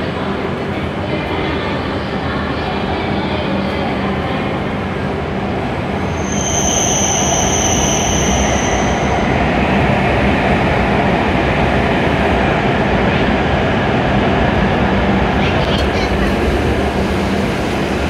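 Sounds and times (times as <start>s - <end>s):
train rushing and rumbling: 0.0s - 18.0s
high-pitched squeal: 6.1s - 9.4s.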